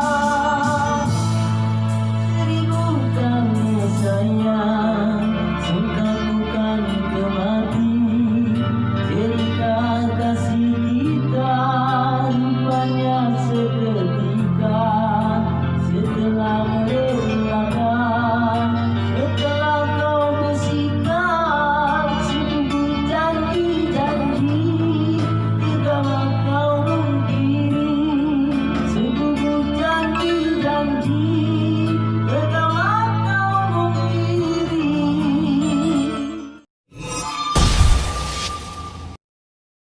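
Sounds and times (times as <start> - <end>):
band accompaniment: 0.0 - 4.3
man singing with vibrato: 0.0 - 36.6.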